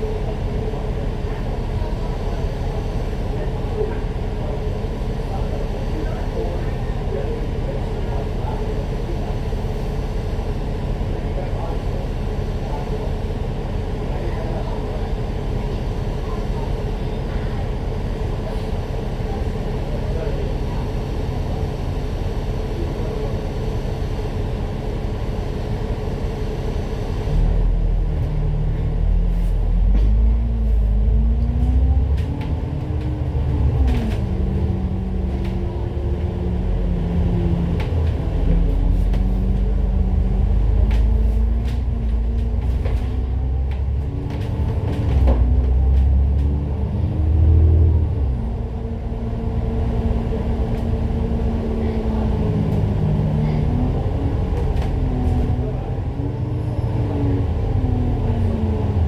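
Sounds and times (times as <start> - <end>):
bus engine accelerating: 0.0 - 59.0
heavy low rumble: 26.7 - 59.0.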